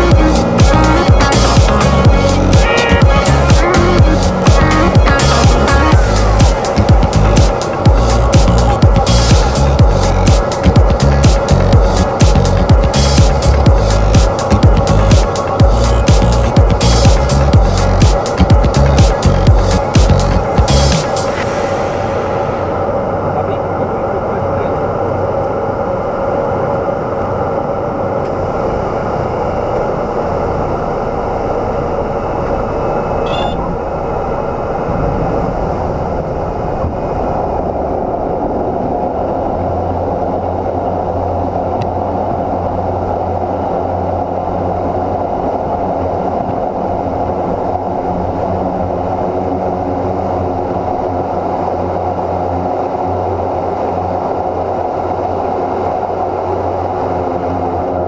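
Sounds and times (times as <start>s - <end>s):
turboprop engine drone: 0.0s - 58.0s.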